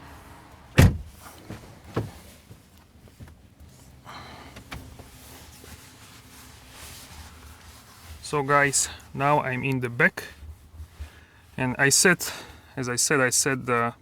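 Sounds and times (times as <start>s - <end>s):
person climbing into car seat: 0.8s - 3.5s, 4.4s - 5.8s.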